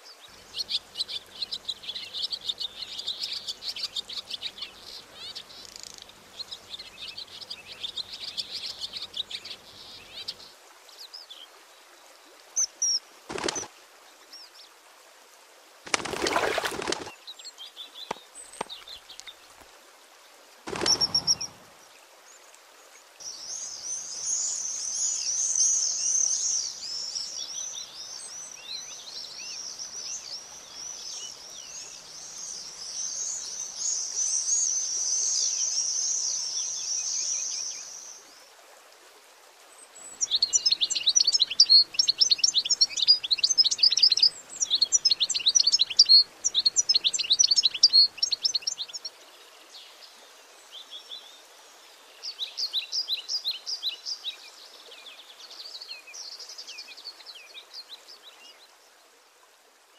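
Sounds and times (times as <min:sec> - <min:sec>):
goldfinches twittering song: 0:00.0 - 0:11.5, 0:20.7 - 0:22.0, 0:23.2 - 0:38.4, 0:39.8 - 0:58.9
swifts shrill calling: 0:20.7 - 0:21.6, 0:40.2 - 0:49.0.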